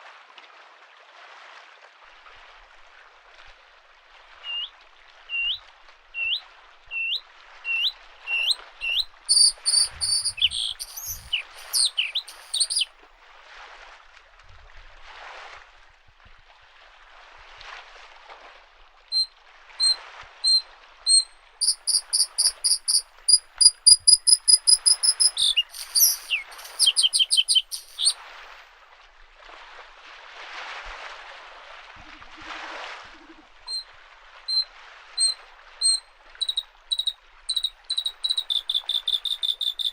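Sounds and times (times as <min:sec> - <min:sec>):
bird whistling and trilling: 0:04.5 - 0:04.7, 0:05.3 - 0:05.6, 0:06.2 - 0:12.9, 0:19.2 - 0:28.2, 0:35.2 - 0:39.9
lake waves washing on shore: 0:08.4 - 0:12.8.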